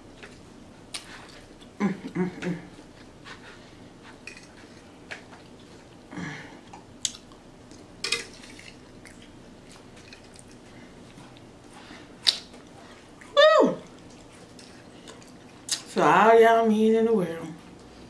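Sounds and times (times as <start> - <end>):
chewing with mouth closed: 4.4 - 7.9, 8.5 - 15.9.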